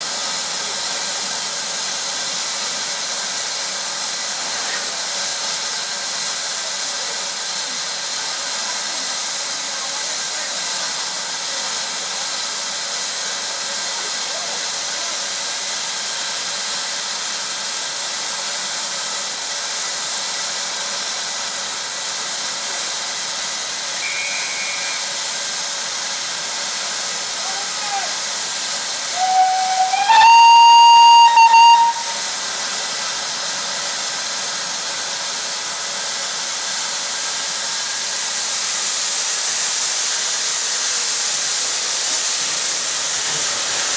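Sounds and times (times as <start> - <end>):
steam locomotive hissing: 0.0 - 43.9
steam whistle: 24.0 - 25.5, 29.1 - 32.6.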